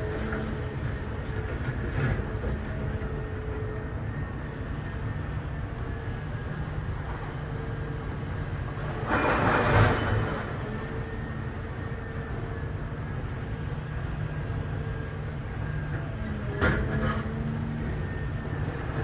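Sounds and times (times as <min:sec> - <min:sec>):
scrap metal baler droning: 0:07.0 - 0:12.2, 0:15.0 - 0:19.0.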